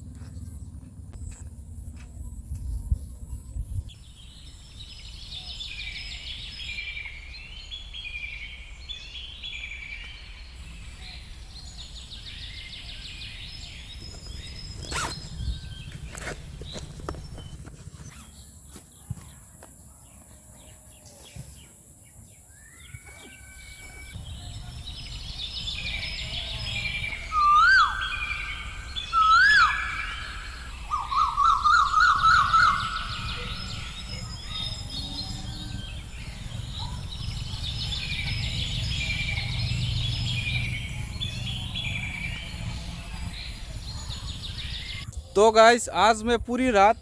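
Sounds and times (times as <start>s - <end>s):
steady low rumble: 0.0s - 5.4s, 24.1s - 29.1s, 30.2s - 45.3s
birds calling and chirping: 0.0s - 47.0s
loud warbling bird trill: 23.0s - 45.0s
loud whistled swooping bird calls: 25.0s - 34.9s.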